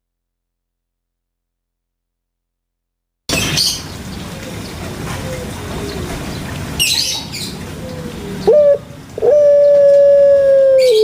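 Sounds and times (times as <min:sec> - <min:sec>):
dove cooing: 0:04.3 - 0:06.4, 0:07.0 - 0:11.0.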